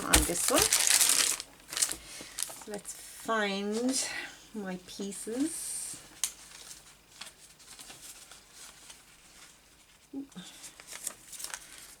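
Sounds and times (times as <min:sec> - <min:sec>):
paper scraps rustling: 0:00.0 - 0:02.8, 0:06.2 - 0:10.0, 0:10.7 - 0:12.0.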